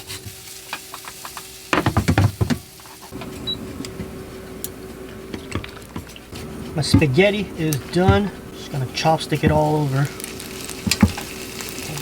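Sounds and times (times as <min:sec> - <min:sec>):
steady hiss: 0:06.2 - 0:12.0.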